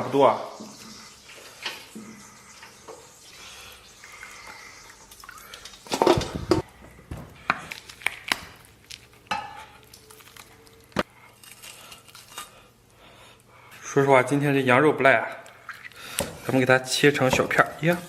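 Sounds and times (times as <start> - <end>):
metal utensils and pot clanking: 9.3 - 9.8, 16.2 - 18.0.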